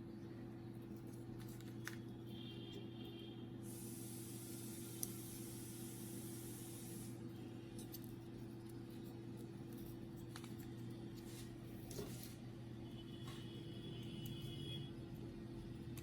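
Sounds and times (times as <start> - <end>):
steady low hum: 0.0 - 16.0
plastic parts clicking and rubbing: 7.8 - 11.3.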